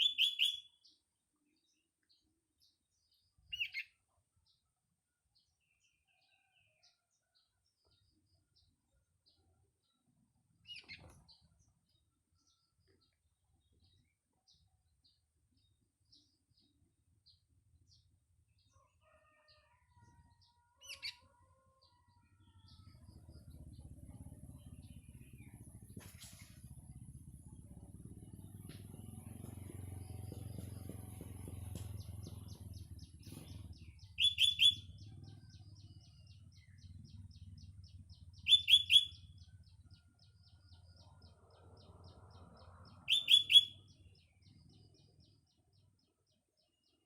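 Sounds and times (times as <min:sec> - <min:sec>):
bulbul calling: 0:00.0 - 0:00.8, 0:28.2 - 0:35.8, 0:38.4 - 0:39.3, 0:43.0 - 0:43.9
faint bird chirps: 0:00.0 - 0:00.9, 0:20.8 - 0:40.2, 0:43.0 - 0:45.0
rooster crowing: 0:18.8 - 0:22.2
low engine rumble: 0:22.3 - 0:46.1.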